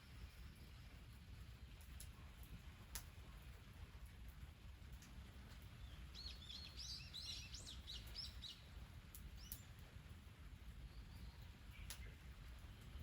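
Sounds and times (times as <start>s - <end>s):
small bird chirping: 5.8s - 8.7s.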